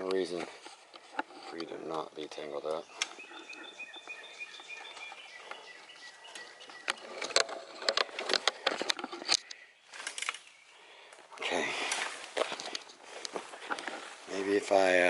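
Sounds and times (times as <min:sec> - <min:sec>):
clicks and rustles from handling: 0:00.0 - 0:03.7, 0:04.8 - 0:10.5
high chirping call: 0:02.7 - 0:07.4.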